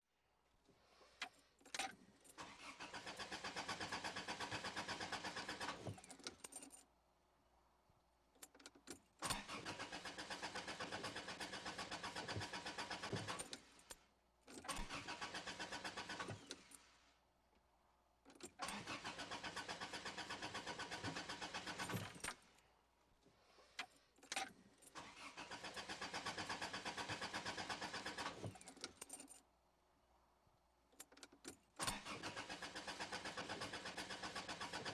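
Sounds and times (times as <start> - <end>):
car starter cranking engine: 2.4 - 6.4, 9.3 - 13.7, 14.6 - 16.8, 18.5 - 22.5, 24.9 - 29.2, 31.8 - 34.9.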